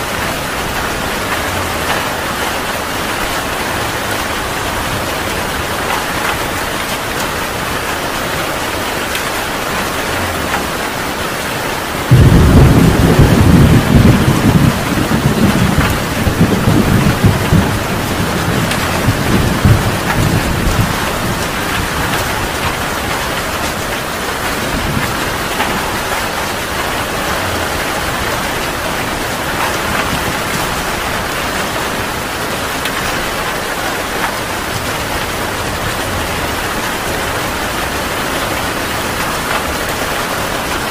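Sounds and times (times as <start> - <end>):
heavy rain falling: 0.0 - 40.9
thunderclap rumbling: 11.8 - 40.8.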